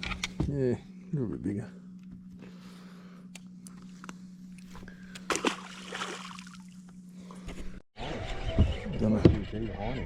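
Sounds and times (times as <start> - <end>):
steady low hum: 0.0 - 7.8
water splash: 5.3 - 6.7.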